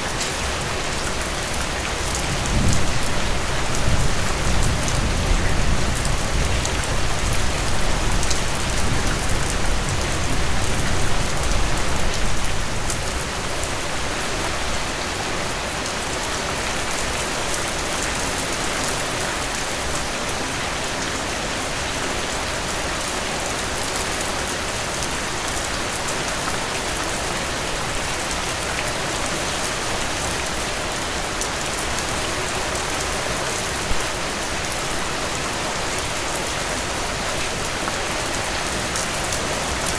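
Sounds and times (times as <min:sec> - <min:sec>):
heavy rain: 0:00.0 - 0:39.9
thunder rumbling: 0:02.2 - 0:11.7.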